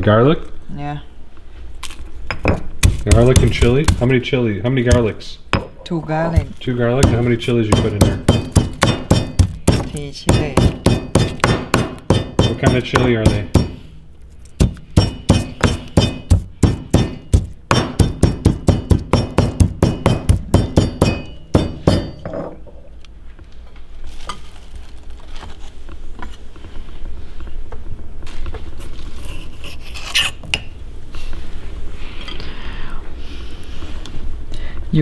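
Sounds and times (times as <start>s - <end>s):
mortar and pestle pounding: 2.3s - 4.2s, 4.8s - 5.8s, 6.4s - 13.9s, 14.6s - 22.5s.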